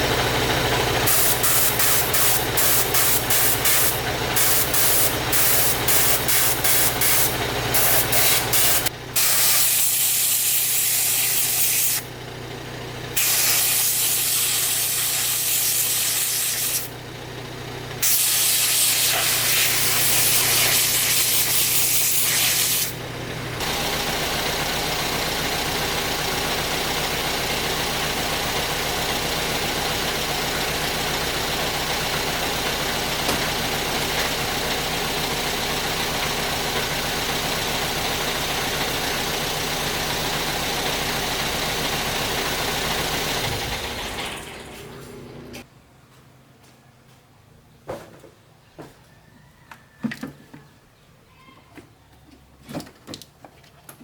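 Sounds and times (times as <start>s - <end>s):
steady machine hum: 0.0s - 9.8s
high-pressure spray hissing: 1.1s - 12.0s, 13.2s - 16.9s, 18.0s - 23.0s.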